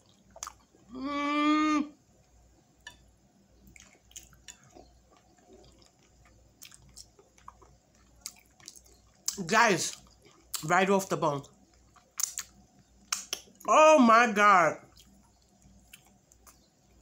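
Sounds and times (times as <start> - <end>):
wet chewing and lip smacks: 0.0 - 0.9, 3.7 - 10.7, 11.5 - 13.7, 14.9 - 17.0
woman humming mmm: 0.9 - 2.0.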